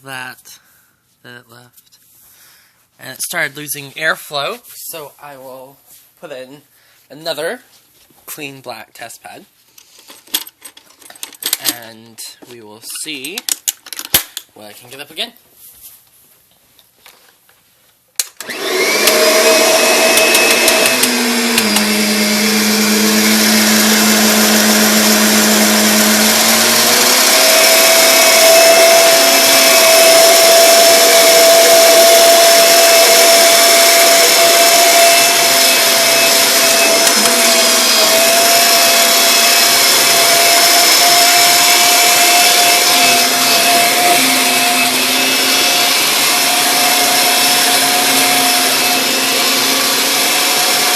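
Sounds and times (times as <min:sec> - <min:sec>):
vacuum cleaner motor whine: 0:18.4 - 0:50.9.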